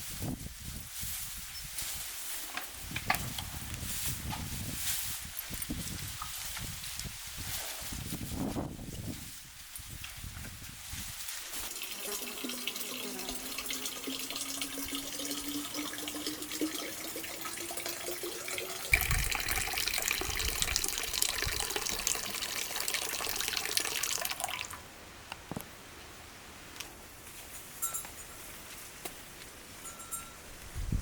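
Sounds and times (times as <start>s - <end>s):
water running into a container: 11.6s - 24.8s.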